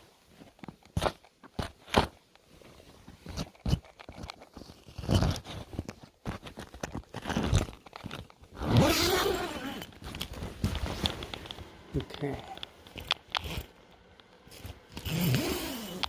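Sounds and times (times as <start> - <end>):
footsteps crunching in snow: 8.9 - 11.4.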